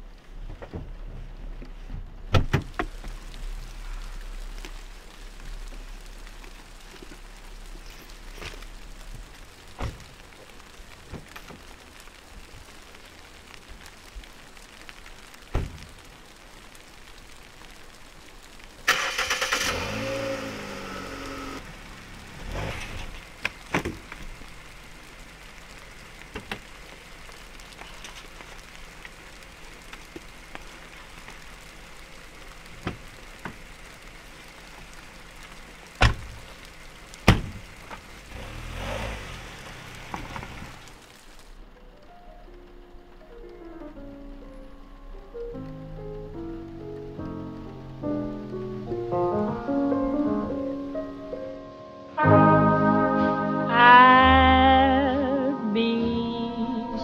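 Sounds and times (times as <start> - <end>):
rain on a car: 0.0 - 52.2, 53.7 - 56.4
car engine starting: 18.6 - 51.1.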